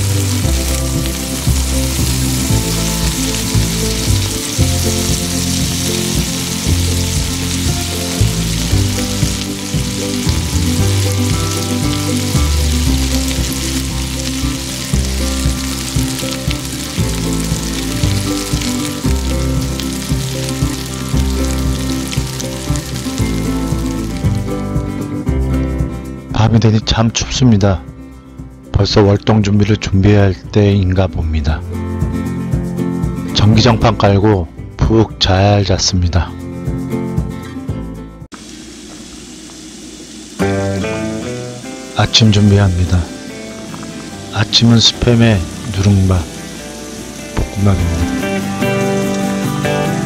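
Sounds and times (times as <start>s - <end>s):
vegetables sizzling on grill: 0.0s - 25.2s, 38.4s - 50.0s
background music with bass line: 0.0s - 38.3s, 40.4s - 50.0s.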